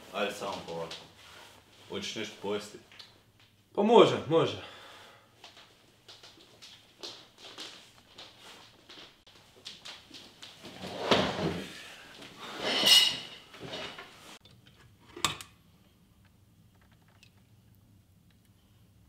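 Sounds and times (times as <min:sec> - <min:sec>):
wooden chair scraping on floor: 0:10.6 - 0:14.4.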